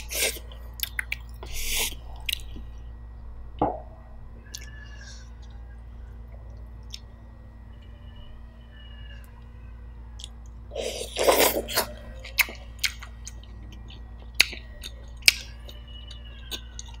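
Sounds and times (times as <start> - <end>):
person eating noisily: 0.0 - 2.8, 10.2 - 17.0
chewing with wet mouth clicks: 0.4 - 2.7, 6.5 - 7.1, 10.2 - 10.6, 11.2 - 17.0.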